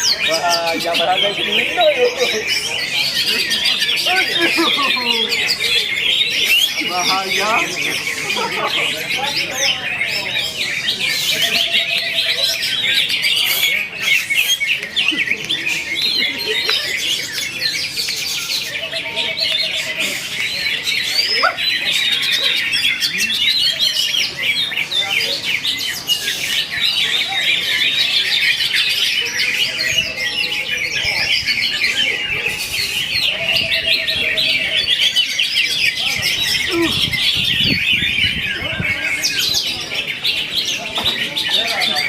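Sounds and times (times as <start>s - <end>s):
bird singing chirps and trills: 0.0s - 42.0s.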